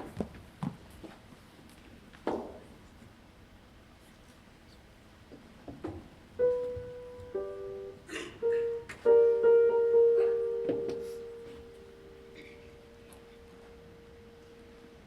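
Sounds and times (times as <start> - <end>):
piano notes and chord: 6.4 - 15.0.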